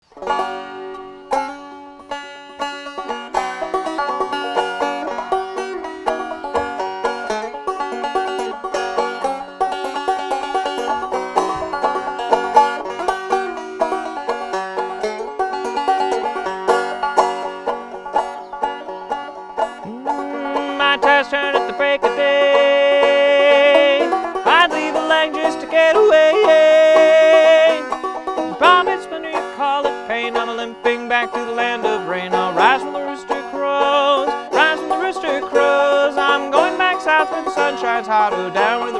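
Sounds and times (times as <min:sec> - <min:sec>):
plucked string instrument picking: 0:00.0 - 0:38.9
wordless voice singing: 0:19.8 - 0:27.9, 0:28.5 - 0:38.9.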